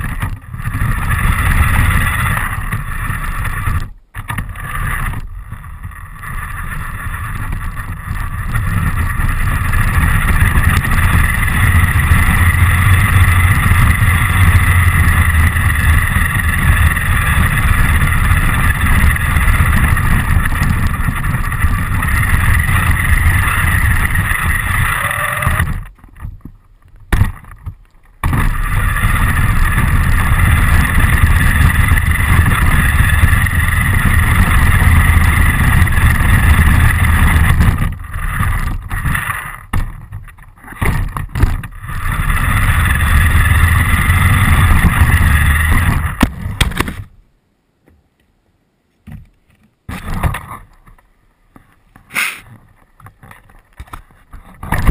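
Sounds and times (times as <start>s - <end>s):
rc car motor whine: 0.0s - 26.0s, 28.2s - 39.7s, 40.8s - 46.2s
wheels rumbling on ground: 0.0s - 47.3s, 49.1s - 54.9s.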